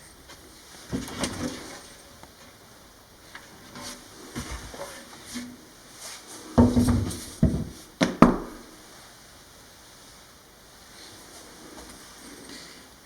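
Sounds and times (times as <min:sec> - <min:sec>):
thuds and knocks in a room: 0:06.6 - 0:08.7.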